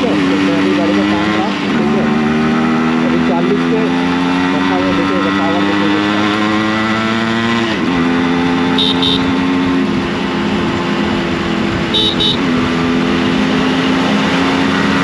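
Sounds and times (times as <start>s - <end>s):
two-stroke motorcycle engine running: 0.0s - 15.0s
short double beeps: 8.8s - 9.3s.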